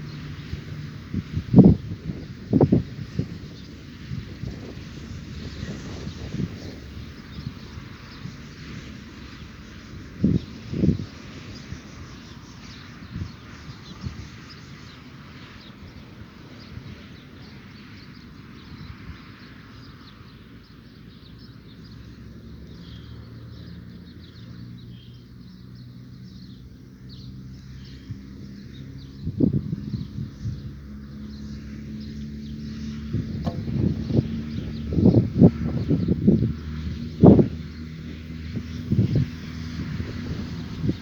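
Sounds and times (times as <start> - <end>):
low thumps: 33.2 - 35.0
low hum: 33.2 - 35.3.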